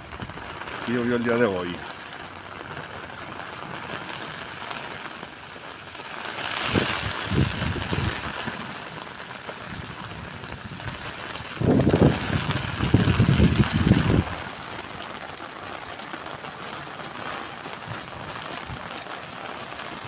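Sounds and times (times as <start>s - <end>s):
rain falling: 0.0s - 20.0s
wind buffeting microphone: 6.6s - 8.7s, 9.6s - 14.5s.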